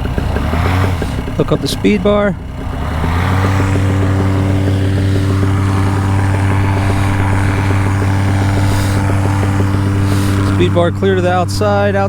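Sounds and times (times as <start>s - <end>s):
paramotor engine idling: 0.0s - 12.0s.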